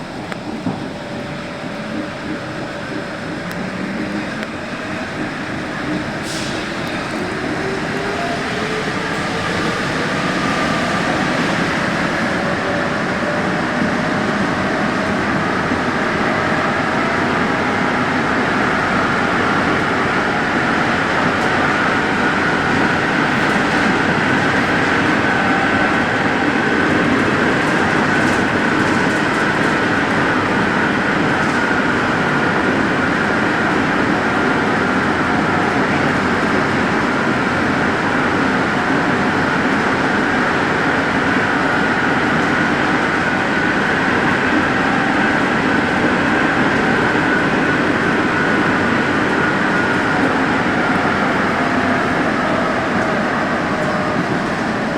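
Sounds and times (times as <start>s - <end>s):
metro train rumbling: 0.0s - 54.9s.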